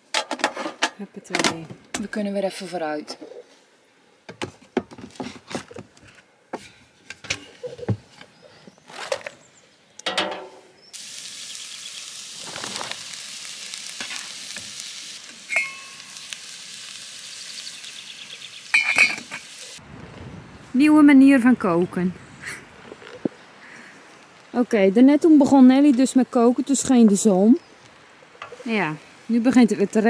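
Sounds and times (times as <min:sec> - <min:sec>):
vegetables sizzling in a wok: 0:10.5 - 0:19.8
metal saucepan lid clanking: 0:15.5 - 0:16.0.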